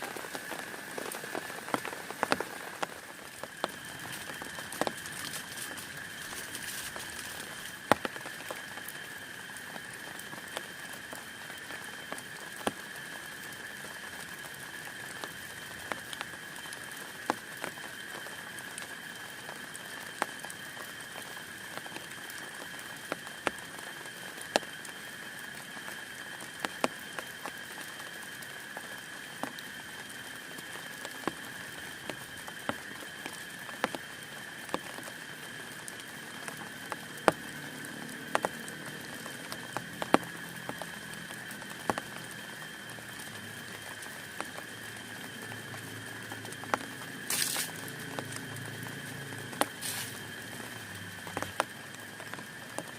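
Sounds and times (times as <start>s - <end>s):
rain hissing on a tent: 0.0s - 52.9s
raindrops tapping on fabric: 0.0s - 52.9s.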